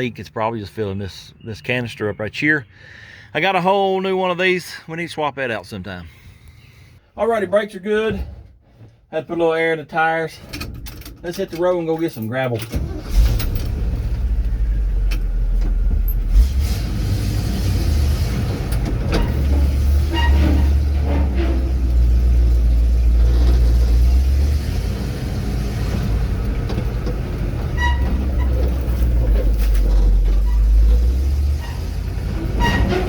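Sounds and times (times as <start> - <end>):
truck engine deep rumble: 11.2 - 33.0.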